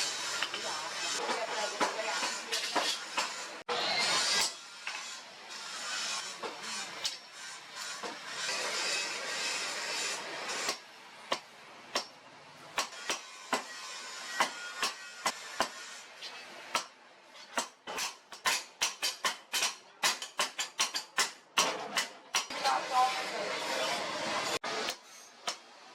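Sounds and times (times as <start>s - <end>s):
hammer striking steel on anvil: 10.5s - 12.2s, 12.8s - 15.9s, 16.7s - 22.6s.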